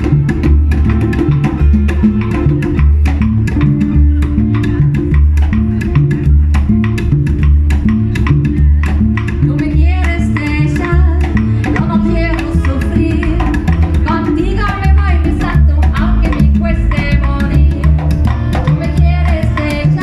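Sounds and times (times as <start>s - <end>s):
hand percussion: 0.0s - 20.0s
latin band playing: 0.0s - 20.0s
plucked guitar: 0.0s - 20.0s.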